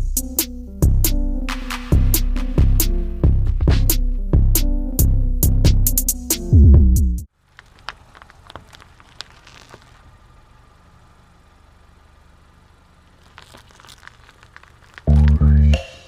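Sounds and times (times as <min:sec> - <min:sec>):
loud music with bass and guitar: 0:00.0 - 0:07.2, 0:15.1 - 0:16.0
plastic clicks and crinkling: 0:07.4 - 0:10.1, 0:13.1 - 0:15.5.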